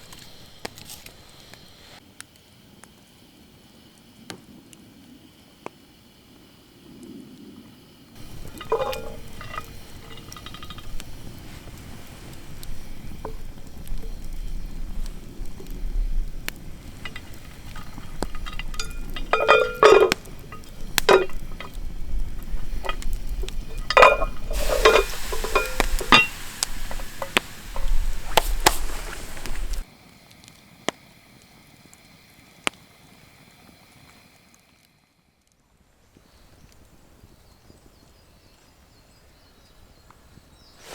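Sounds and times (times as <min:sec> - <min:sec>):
frying sizzle: 0:08.1 - 0:29.9
metal utensils clinking on pan: 0:08.2 - 0:12.3, 0:16.8 - 0:29.8.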